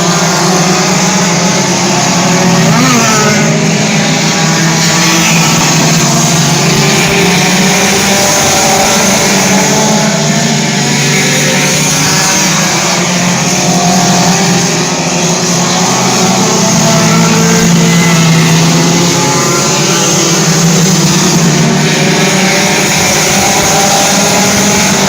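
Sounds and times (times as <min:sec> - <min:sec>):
race car engines running hard: 0:00.0 - 0:25.0.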